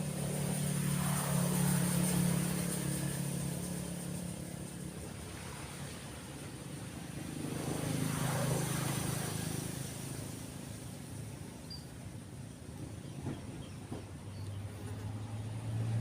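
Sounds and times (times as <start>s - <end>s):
vehicle passing by: 0.0s - 11.6s, 14.0s - 16.0s
faint bird chirps: 11.6s - 12.0s.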